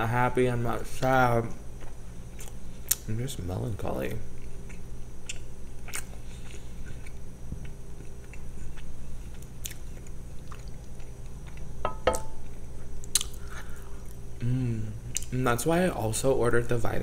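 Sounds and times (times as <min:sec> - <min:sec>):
steady low hum: 0:00.0 - 0:17.0
close chewing and biting: 0:04.4 - 0:11.7.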